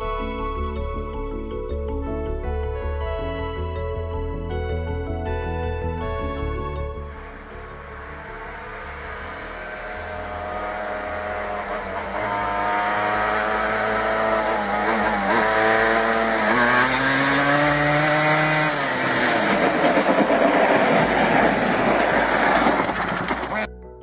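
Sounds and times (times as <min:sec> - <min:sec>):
vehicle engine revving: 0:07.1 - 0:23.7.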